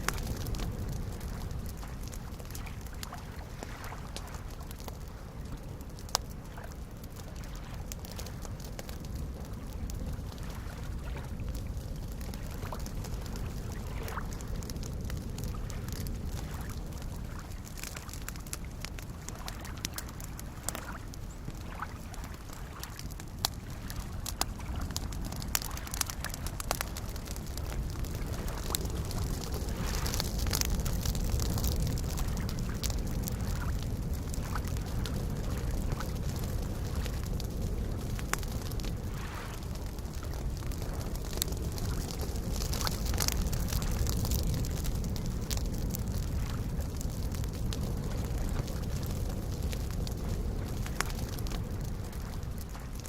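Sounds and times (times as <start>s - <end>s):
campfire crackling and popping: 0.0s - 53.0s
lake waves lapping: 1.2s - 4.6s, 12.6s - 14.4s, 16.4s - 18.6s, 19.2s - 33.8s, 39.0s - 41.1s.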